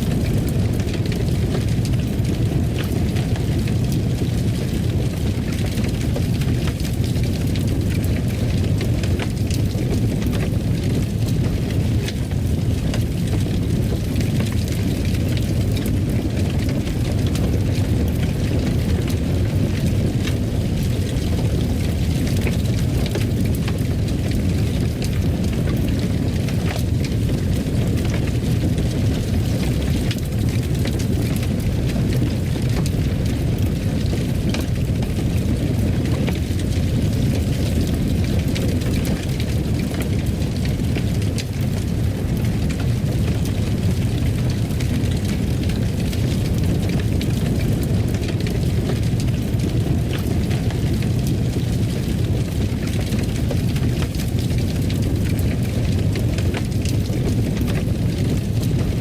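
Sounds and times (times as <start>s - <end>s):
fireplace fire crackling: 0.0s - 59.0s.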